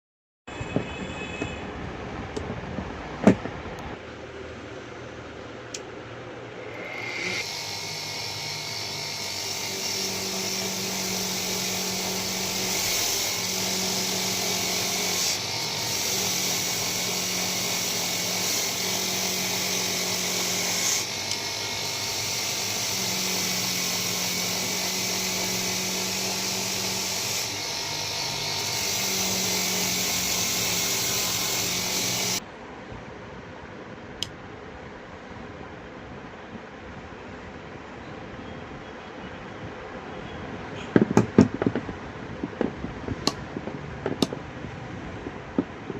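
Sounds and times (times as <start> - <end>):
electric power tool hissing: 6.5 - 32.4.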